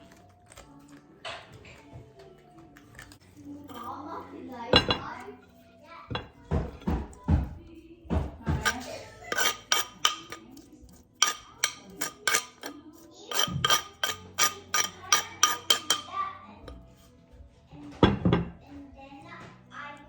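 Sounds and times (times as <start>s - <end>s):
utensil clinking against dish: 2.9s - 17.1s, 17.8s - 18.6s
dull utensil thuds: 4.7s - 5.2s, 6.1s - 10.3s, 17.9s - 18.6s.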